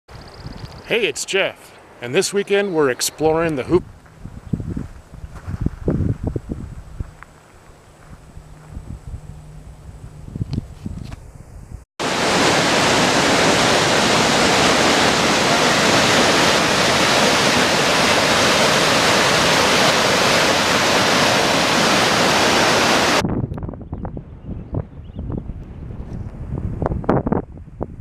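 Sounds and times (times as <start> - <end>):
rushing river water: 12.0 - 23.2.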